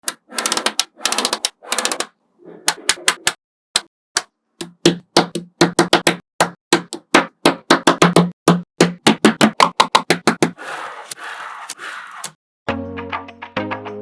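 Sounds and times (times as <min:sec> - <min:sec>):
magnetic balls clicking together: 0:00.0 - 0:02.1.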